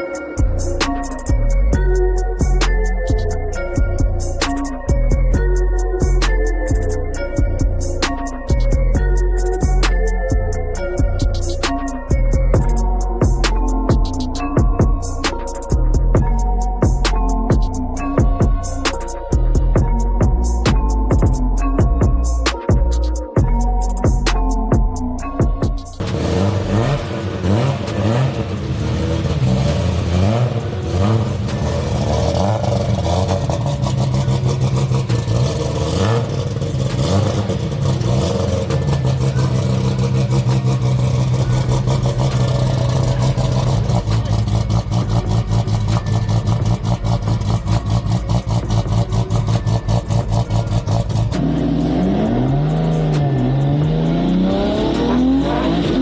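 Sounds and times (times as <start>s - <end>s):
car engine revving hard: 26.0s - 56.0s.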